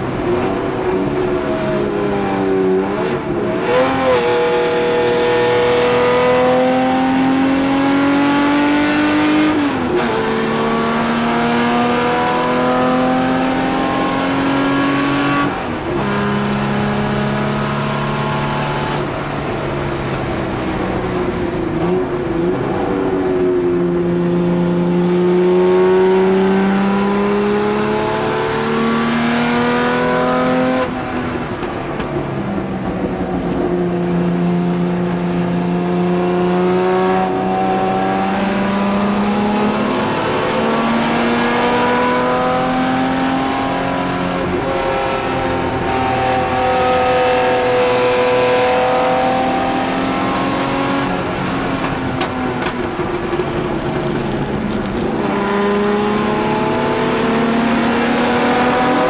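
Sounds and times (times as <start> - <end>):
race car engine accelerating: 0.1 - 20.2, 21.2 - 31.6, 32.9 - 59.0.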